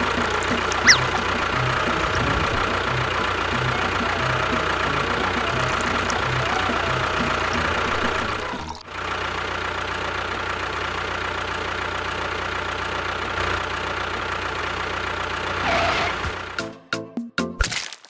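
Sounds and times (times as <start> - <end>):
motor running: 0.0 - 8.8.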